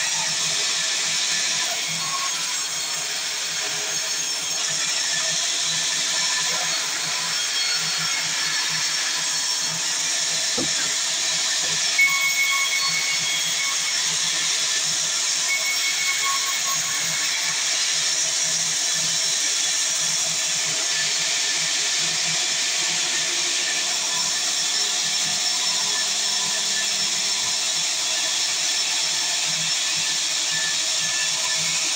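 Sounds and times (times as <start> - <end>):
saw cutting through wood: 0.0 - 31.9
short knock: 10.6 - 11.0.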